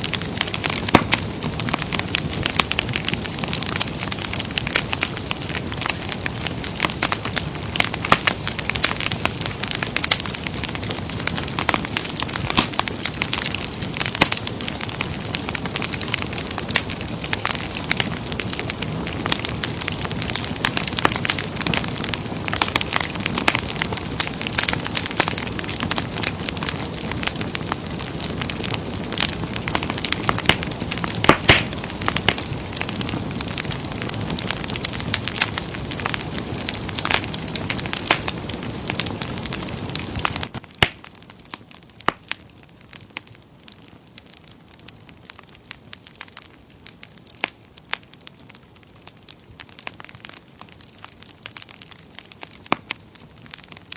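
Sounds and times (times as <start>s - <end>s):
rush of flame: 0.0s - 42.3s
wood fire crackling and popping: 0.0s - 53.9s.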